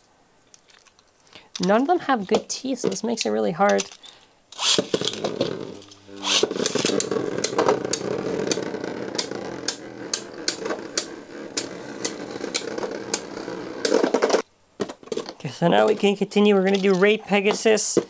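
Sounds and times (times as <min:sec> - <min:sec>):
launcher whir: 0:04.6 - 0:14.4
spinning tops whirring: 0:04.6 - 0:14.4.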